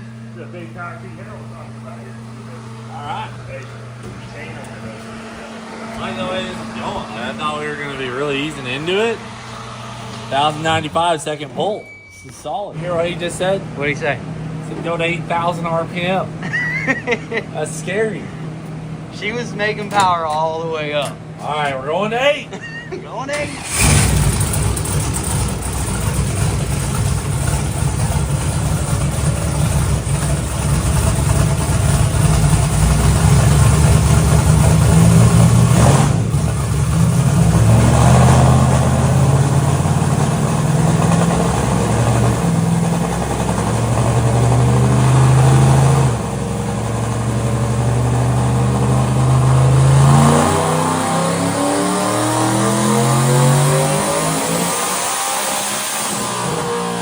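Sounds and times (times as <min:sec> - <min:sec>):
truck engine revving at full throttle: 0:00.0 - 0:11.4, 0:23.4 - 0:57.0.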